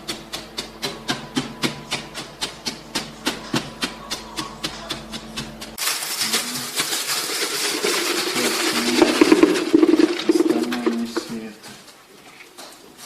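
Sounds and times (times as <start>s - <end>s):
rapid even tapping: 0.0s - 11.4s
dense scraping rustling noise: 5.8s - 13.0s.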